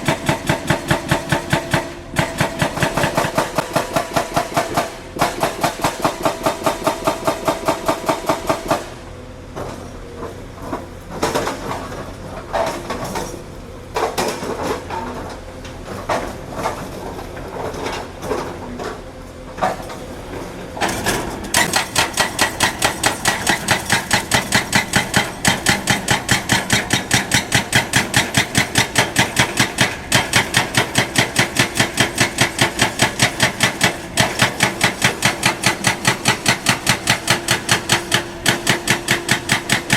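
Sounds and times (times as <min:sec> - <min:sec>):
construction machine hammering: 0:00.0 - 0:09.0, 0:20.8 - 0:39.9.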